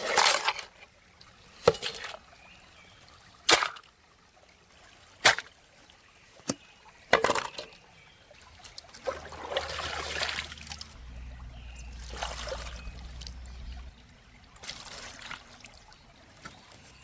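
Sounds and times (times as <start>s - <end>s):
water trickling: 8.3s - 17.0s
low steady hum: 9.1s - 16.2s.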